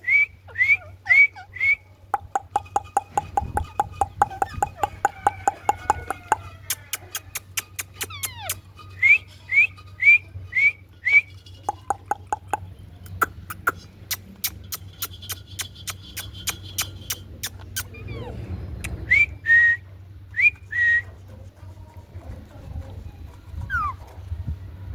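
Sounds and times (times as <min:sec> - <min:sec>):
low steady hum: 0:00.0 - 0:24.9
parrot chirping: 0:02.2 - 0:19.0.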